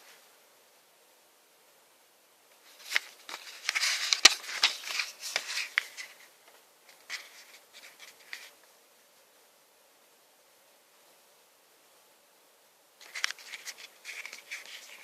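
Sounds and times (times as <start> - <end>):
items rustling: 2.6 - 8.6, 13.0 - 15.0.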